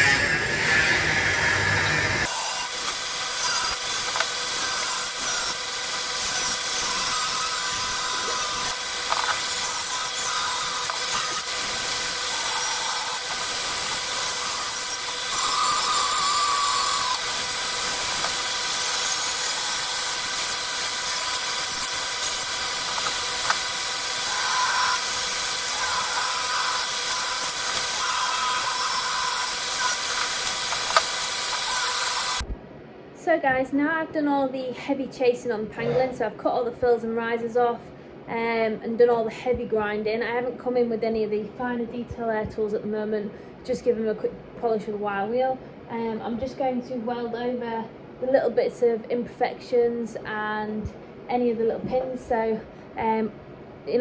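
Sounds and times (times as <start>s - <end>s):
grinder motor whining: 0.0s - 32.5s
hiss of metal being ground: 1.6s - 32.4s.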